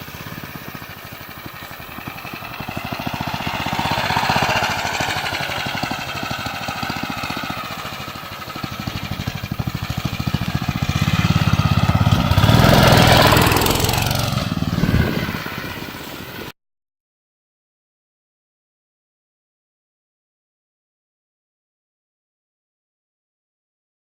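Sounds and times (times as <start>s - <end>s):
dirt bike engine running: 0.0s - 16.5s.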